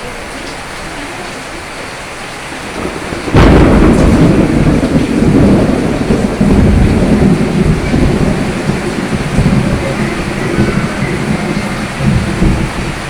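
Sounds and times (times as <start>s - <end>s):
steady rain falling: 0.0s - 13.0s
thunderclap and rumble: 2.6s - 13.0s.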